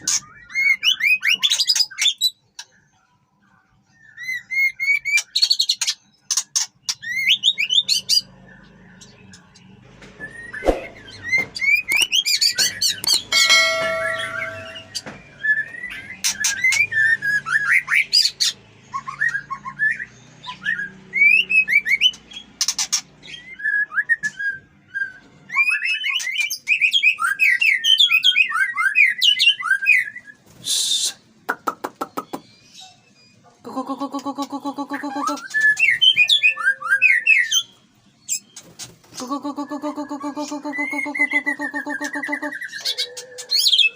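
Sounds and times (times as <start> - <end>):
harsh bird note: 13.2 - 15.1.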